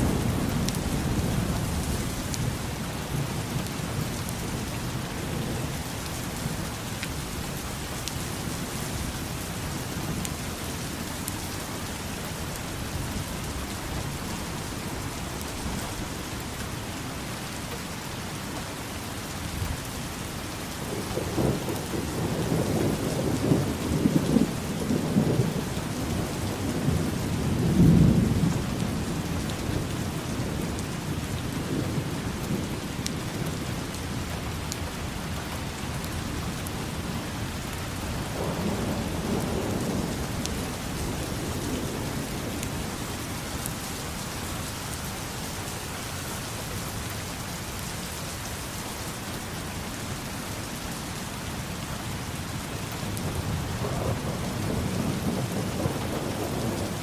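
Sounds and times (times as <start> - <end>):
rolling thunder: 0.0 - 3.6, 20.9 - 33.7, 38.1 - 43.4, 53.0 - 57.0
steady rain falling: 0.0 - 57.0.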